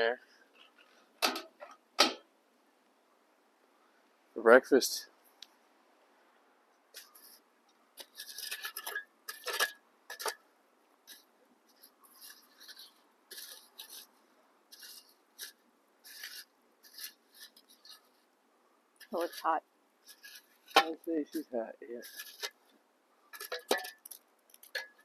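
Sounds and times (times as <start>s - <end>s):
scraping and rustling in coals: 6.9s - 10.4s, 11.0s - 18.4s, 19.0s - 25.0s.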